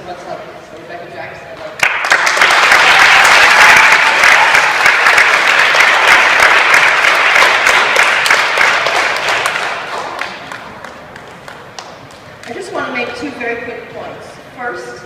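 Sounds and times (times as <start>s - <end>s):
audience applauding: 1.8s - 12.2s.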